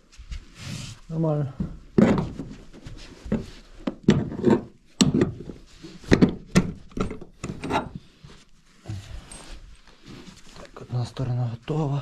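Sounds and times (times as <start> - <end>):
scraping and knocking on wood: 1.6 - 10.4.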